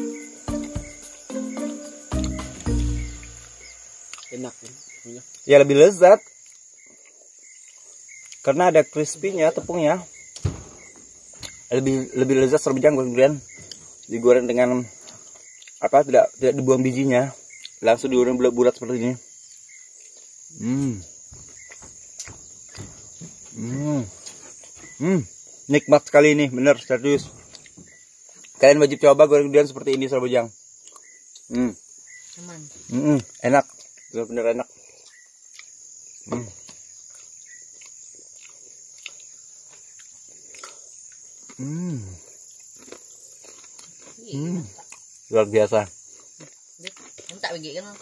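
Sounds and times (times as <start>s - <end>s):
person humming: 0.0s - 3.4s, 20.6s - 21.1s, 41.6s - 42.2s
high insect drone: 0.0s - 48.0s
man humming while chewing: 20.5s - 21.2s, 23.5s - 25.3s, 40.5s - 43.0s, 44.3s - 45.0s.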